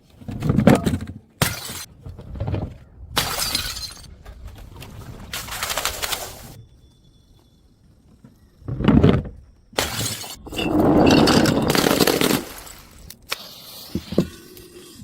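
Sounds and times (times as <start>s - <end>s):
glass bottles shattering: 3.2s - 4.1s, 9.8s - 13.1s.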